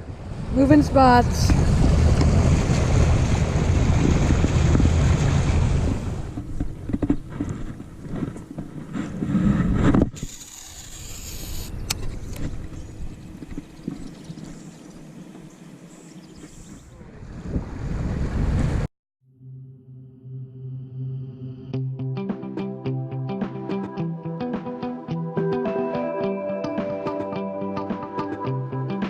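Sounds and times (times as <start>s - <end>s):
wind rush on microphone: 0.0s - 10.3s, 16.4s - 18.9s
water and boat noise: 0.0s - 18.9s
boat motor running: 0.7s - 9.2s, 10.2s - 16.7s.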